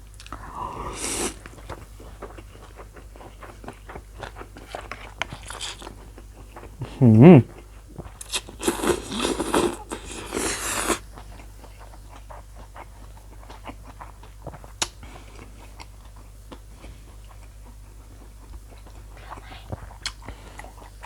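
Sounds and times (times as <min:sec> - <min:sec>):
chewing with wet clicks: 0:00.0 - 0:06.9, 0:07.5 - 0:21.0
slurping noodles: 0:00.4 - 0:01.6, 0:08.2 - 0:11.0.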